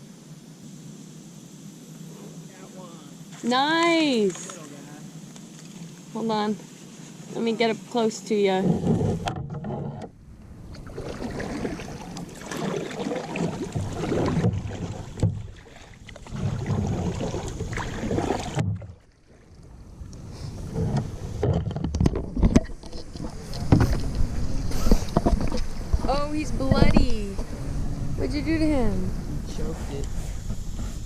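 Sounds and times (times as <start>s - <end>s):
wind rumbling on microphone: 8.3s - 31.0s.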